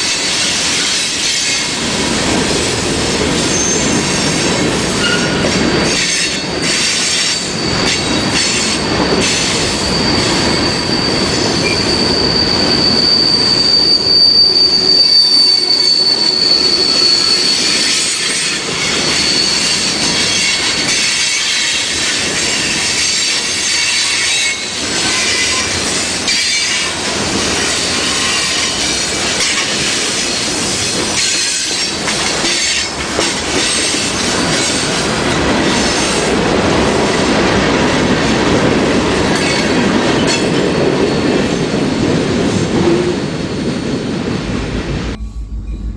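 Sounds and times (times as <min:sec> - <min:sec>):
railroad cars rolling past: 0:00.0 - 0:45.9
high wheel squeal: 0:03.4 - 0:26.9.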